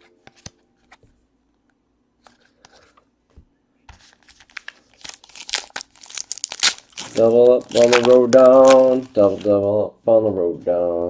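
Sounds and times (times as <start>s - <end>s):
wrapper tearing and crinkling: 4.1s - 9.5s.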